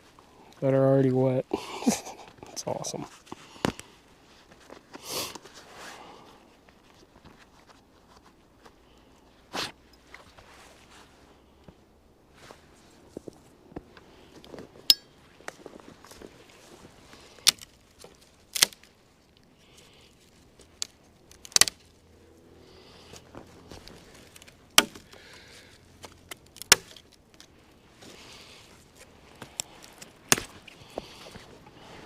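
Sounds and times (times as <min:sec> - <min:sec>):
wood cracking: 0:17.2 - 0:19.5, 0:20.2 - 0:22.0, 0:23.2 - 0:31.9.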